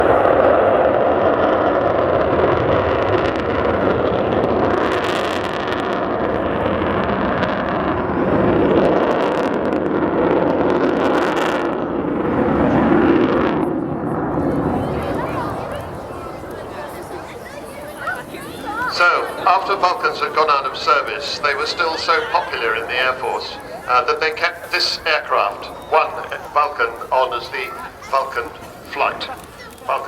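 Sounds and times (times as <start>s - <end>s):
jet engines rumbling in flight: 0.0s - 30.0s.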